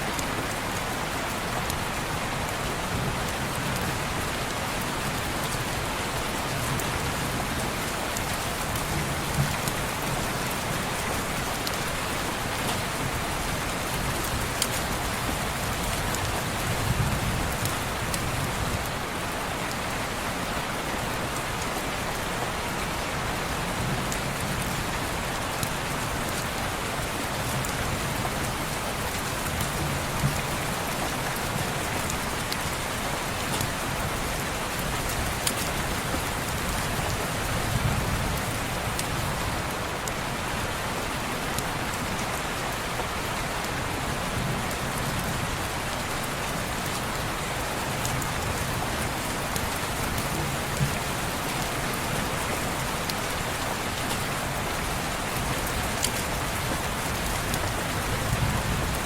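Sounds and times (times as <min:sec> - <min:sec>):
rain on window glass: 0:23.2 - 0:59.0.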